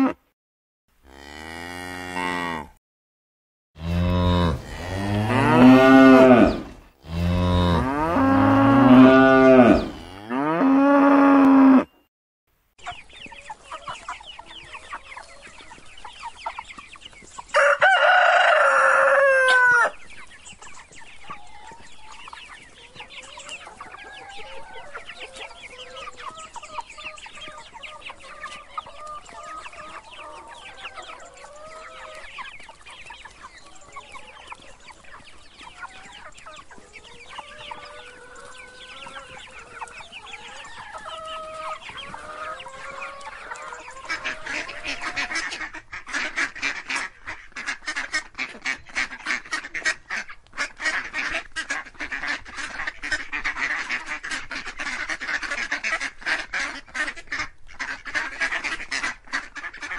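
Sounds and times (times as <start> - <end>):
chickens clucking: 3.8 - 11.8, 12.8 - 59.9
rooster crowing: 17.6 - 20.0.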